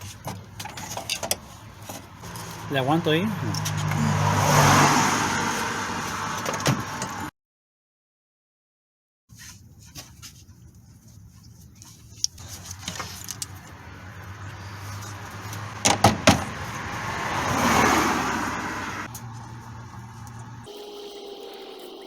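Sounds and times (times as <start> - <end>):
metal tools clinking: 0.6 - 2.6
sharp metallic knocks: 15.8 - 16.6.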